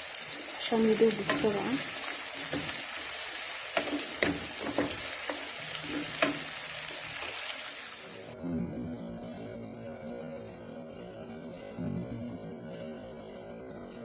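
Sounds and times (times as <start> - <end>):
onions sizzling in oil: 0.0 - 8.4
spoon knocking against pan: 3.8 - 5.5, 6.2 - 6.5.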